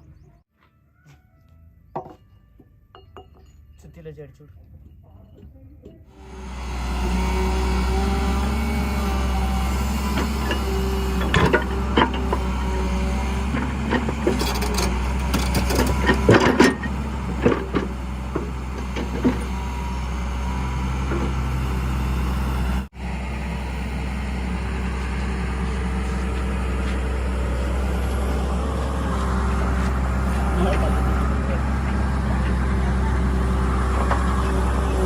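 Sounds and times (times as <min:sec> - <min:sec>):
metallic clanks and knocks: 0:02.0 - 0:04.1, 0:10.2 - 0:12.6, 0:13.5 - 0:19.5
heavy diesel engine running: 0:06.1 - 0:35.0.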